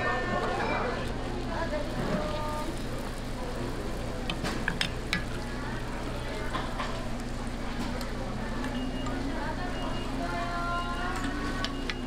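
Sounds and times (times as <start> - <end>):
dough sizzling in oil: 0.1 - 12.0
oil popping and clicking: 4.2 - 5.5.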